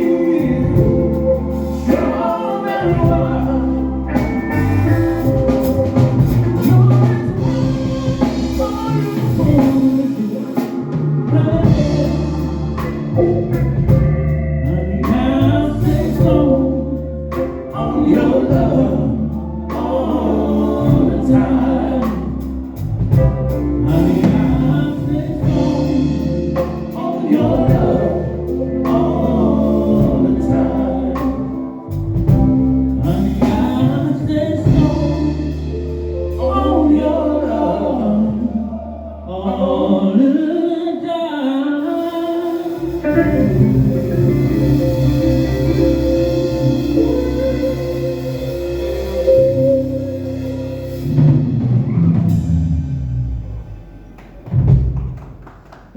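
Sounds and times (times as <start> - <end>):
live band playing: 0.0 - 39.2, 41.8 - 55.0
person singing: 0.0 - 52.8.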